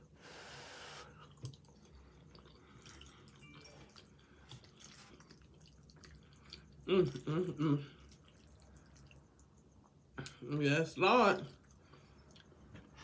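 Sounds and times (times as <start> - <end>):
wet chewing: 1.2 - 9.6.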